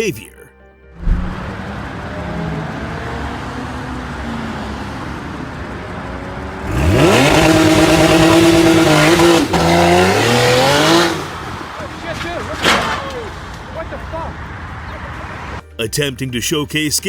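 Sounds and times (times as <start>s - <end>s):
car engine revving: 1.0s - 11.7s.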